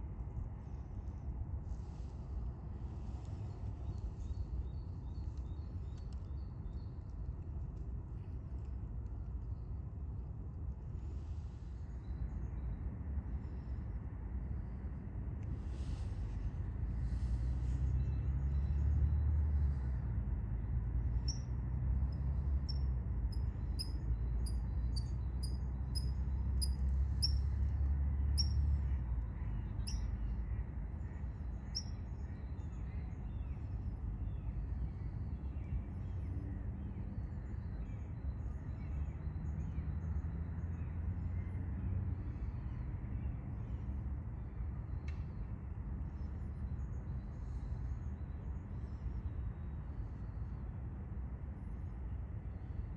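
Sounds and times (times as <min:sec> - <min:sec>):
steady low rumble: 0:00.0 - 0:36.3.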